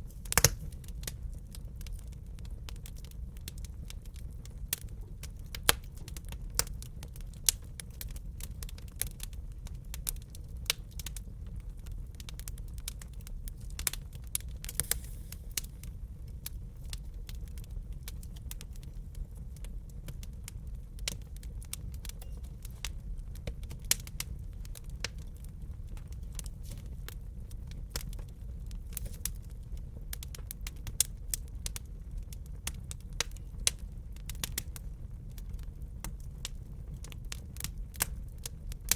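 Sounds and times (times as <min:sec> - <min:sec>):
burning logs rumbling: 0:00.0 - 0:38.9
wood fire crackling: 0:00.0 - 0:38.9
sharp pops and snaps: 0:00.1 - 0:01.2.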